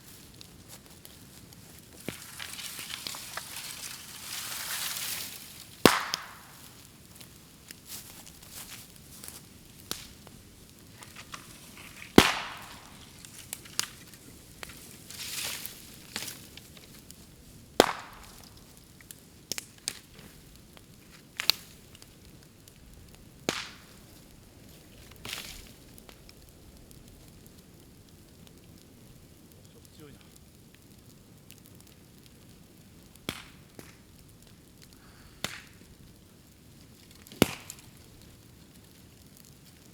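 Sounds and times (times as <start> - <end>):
fire crackling: 0.0 - 39.9
bamboo bursting with loud bangs: 4.4 - 6.8, 12.0 - 13.9, 17.8 - 18.5, 23.5 - 23.9, 33.2 - 34.0, 37.3 - 37.8.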